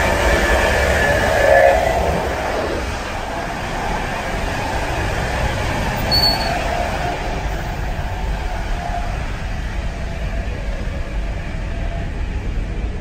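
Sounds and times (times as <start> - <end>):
train carriage rumble: 0.0 - 13.0.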